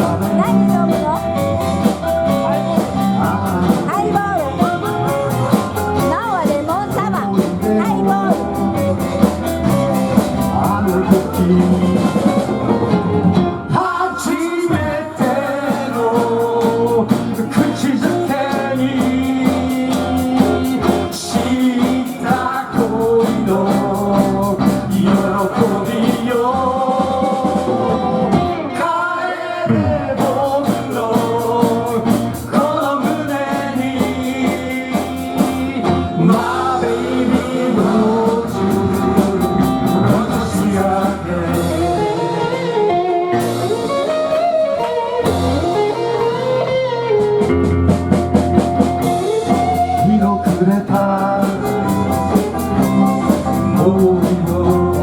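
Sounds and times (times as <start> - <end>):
live rock band playing: 0.0 - 29.0, 29.7 - 55.0.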